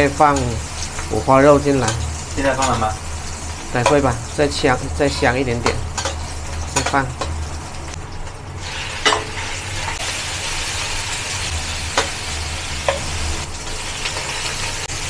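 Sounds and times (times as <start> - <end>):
meat sizzling in a wok: 0.0 - 15.0
metal spatula knocking wok: 3.8 - 4.1, 5.5 - 7.4, 11.9 - 13.2.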